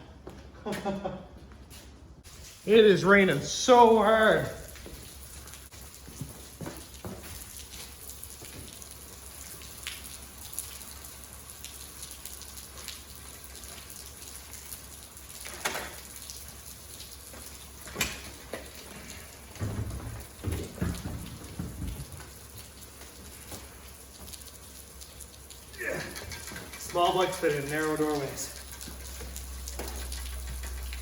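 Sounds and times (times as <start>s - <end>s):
heavy rain falling: 7.6s - 31.0s.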